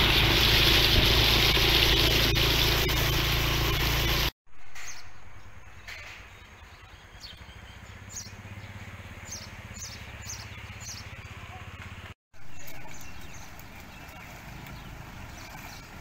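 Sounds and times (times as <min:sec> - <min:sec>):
bird chirping: 0:04.8 - 0:11.5, 0:12.4 - 0:15.9.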